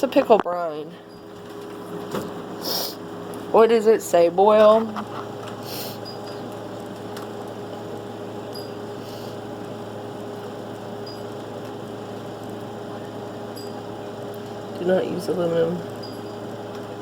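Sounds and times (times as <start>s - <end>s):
fan motor humming: 0.0s - 17.0s.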